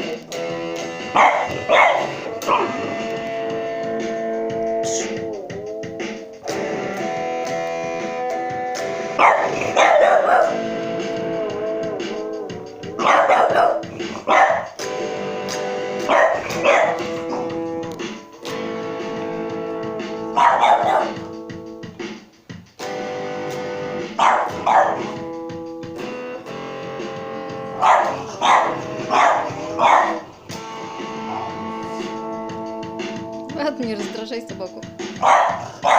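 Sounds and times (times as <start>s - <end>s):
guitar chords: 0.0s - 35.9s
dog barking: 1.1s - 2.9s, 9.2s - 10.7s, 13.0s - 14.8s, 16.0s - 17.6s, 20.1s - 21.4s, 24.1s - 25.3s, 27.7s - 30.3s, 35.1s - 35.9s.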